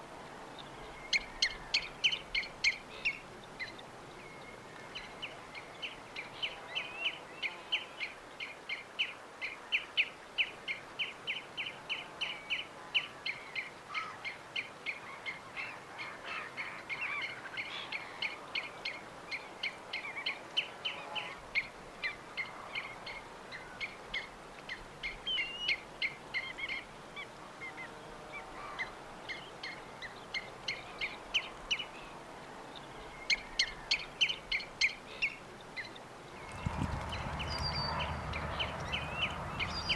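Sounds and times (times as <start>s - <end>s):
birds calling: 36.3s - 39.9s.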